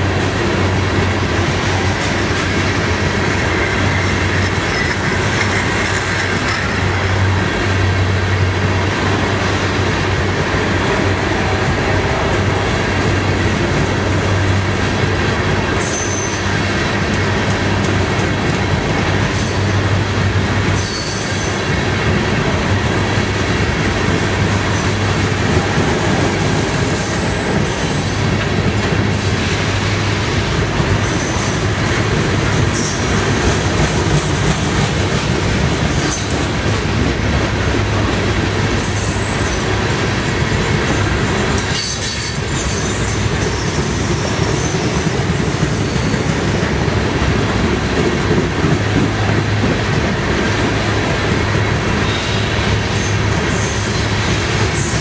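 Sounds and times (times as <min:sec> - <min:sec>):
train wheels rumbling on rail: 0:00.0 - 0:55.0
high-pitched wheel squeals: 0:15.8 - 0:16.6, 0:20.8 - 0:21.6.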